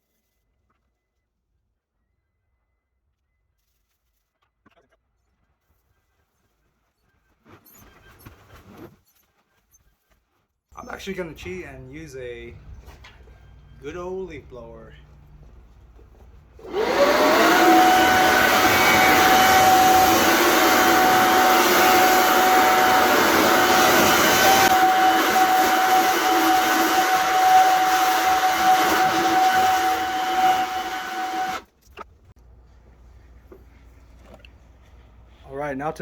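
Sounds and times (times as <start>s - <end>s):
leaf blower whine: 16.6s - 31.6s.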